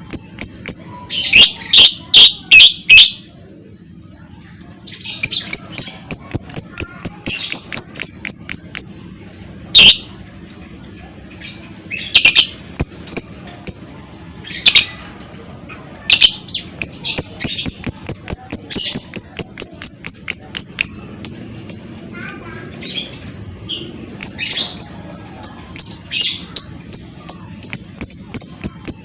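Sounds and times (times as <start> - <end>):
lovebird chirping: 4.9 - 9.0, 9.8 - 10.1, 11.9 - 13.9, 16.1 - 21.9, 23.7 - 29.0.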